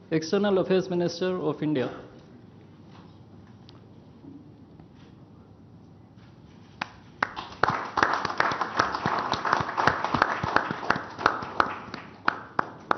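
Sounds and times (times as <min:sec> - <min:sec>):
people clapping: 0:06.7 - 0:12.9.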